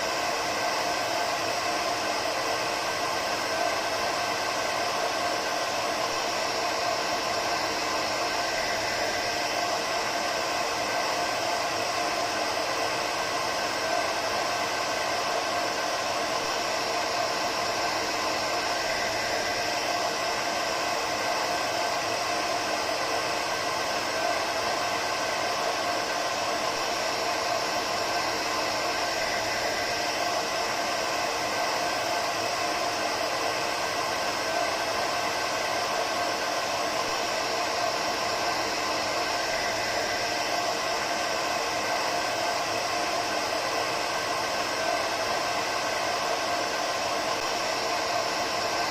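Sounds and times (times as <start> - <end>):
hair dryer running: 0.0 - 48.9.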